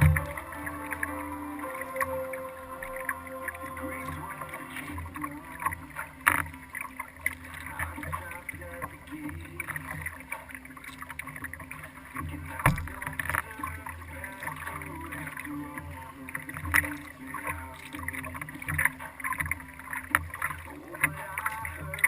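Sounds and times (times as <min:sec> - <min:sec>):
water and paddling: 0:00.0 - 0:22.0
knocks on kayak hull: 0:12.6 - 0:13.0.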